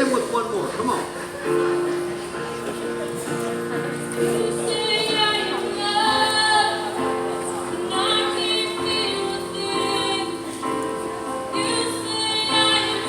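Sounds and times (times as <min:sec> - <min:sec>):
woman singing: 0:04.2 - 0:13.0.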